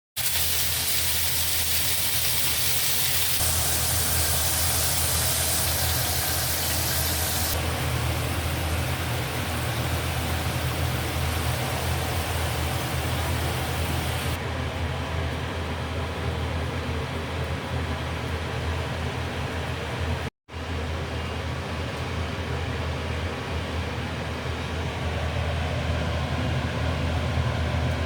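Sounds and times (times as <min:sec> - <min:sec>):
food sizzling in a pan: 0:00.2 - 0:14.4
steady low hum: 0:03.4 - 0:16.9.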